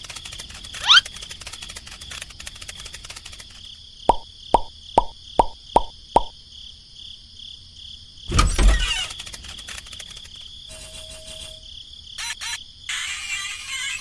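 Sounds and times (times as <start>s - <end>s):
quick clicks: 0.0s - 5.1s, 8.9s - 10.5s.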